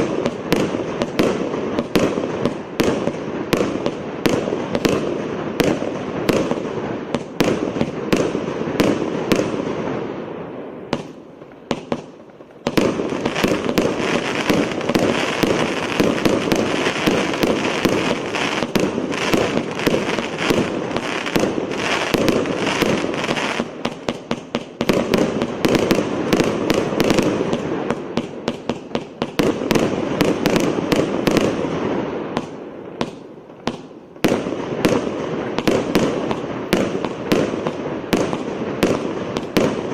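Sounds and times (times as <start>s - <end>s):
fireworks crackling: 0.0s - 39.9s
fireworks launch thumps and bursts: 10.9s - 31.7s.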